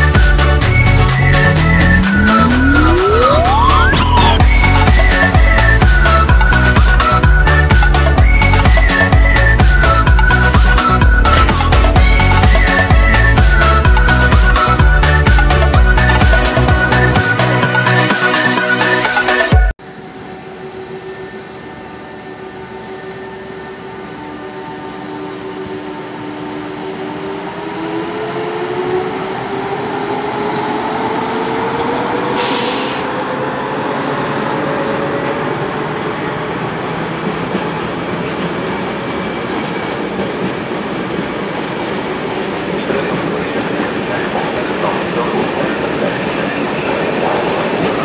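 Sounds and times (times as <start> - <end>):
traction motors whining: 0.4 - 6.2
short hiss: 32.4 - 33.0.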